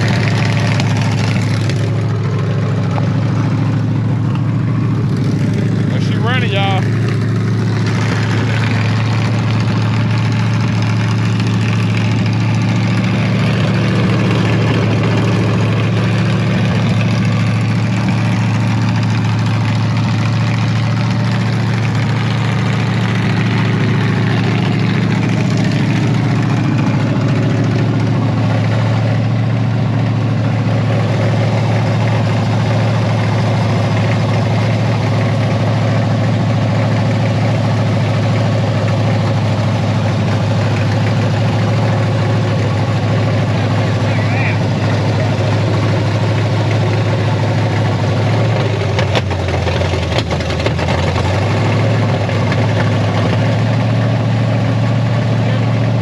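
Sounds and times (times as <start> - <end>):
pickup engine idling: 0.0 - 56.0.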